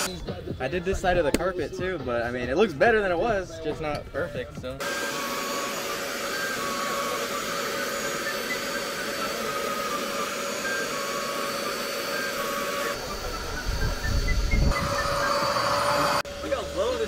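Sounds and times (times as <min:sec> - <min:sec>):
vacuum cleaner running: 0:04.8 - 0:17.0.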